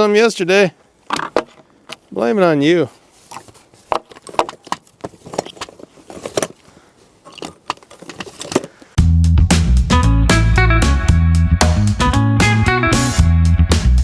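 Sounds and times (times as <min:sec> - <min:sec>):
small hard objects rattling: 0:03.3 - 0:08.9
electric guitar and bass music: 0:09.0 - 0:14.0.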